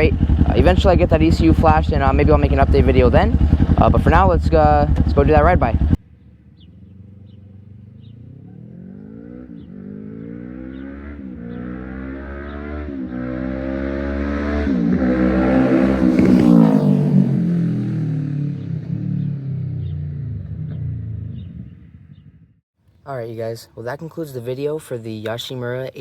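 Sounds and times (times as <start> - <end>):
motorcycle accelerating past: 4.8 - 22.6.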